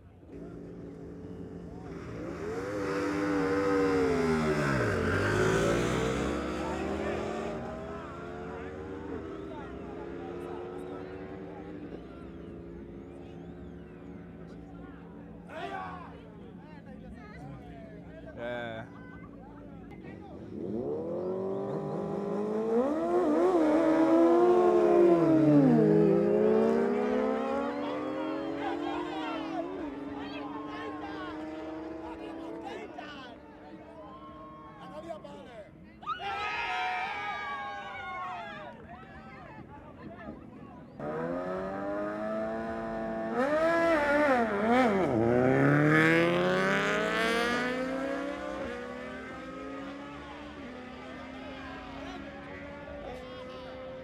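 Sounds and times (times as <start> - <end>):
motorcycle engine revving: 0.2 - 15.3, 19.9 - 32.9, 40.9 - 54.0.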